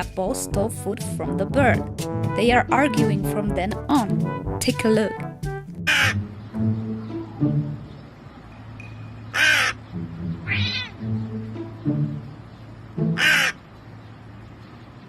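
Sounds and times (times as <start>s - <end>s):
background music low notes: 0.0s - 15.0s
crow cawing: 5.9s - 6.3s, 9.3s - 9.8s, 10.4s - 11.0s, 13.2s - 13.6s
cat meowing: 10.4s - 11.0s.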